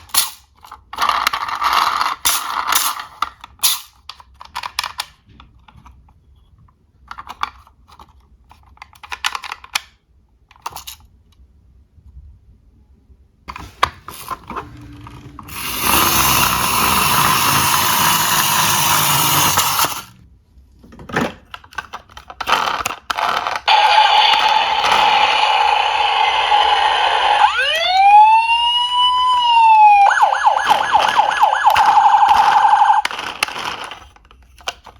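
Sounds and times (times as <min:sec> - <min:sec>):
toy cars clicking and rattling: 0:00.0 - 0:06.1, 0:06.9 - 0:11.4, 0:14.1 - 0:20.2, 0:21.2 - 0:29.8, 0:30.6 - 0:34.9
toy siren: 0:15.5 - 0:19.9, 0:23.7 - 0:33.1.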